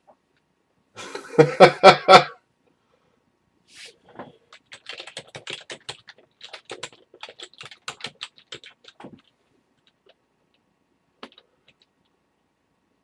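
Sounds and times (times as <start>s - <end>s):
typing on computer keyboard: 4.5s - 10.2s, 11.2s - 12.0s.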